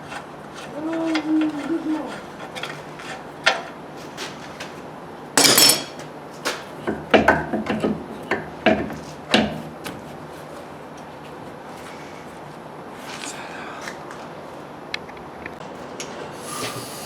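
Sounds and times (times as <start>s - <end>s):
tools knocking on metal: 5.4s - 6.0s, 6.8s - 9.6s.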